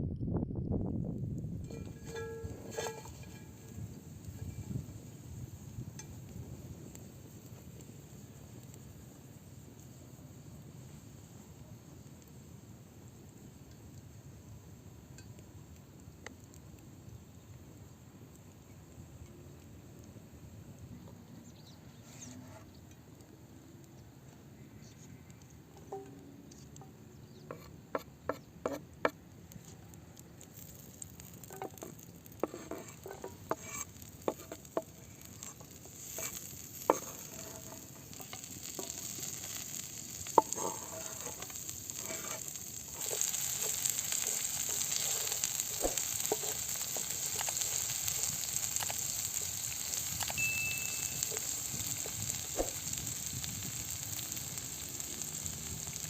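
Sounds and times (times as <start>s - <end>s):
food sizzling in a pan: 1.6s - 19.2s, 30.3s - 56.0s.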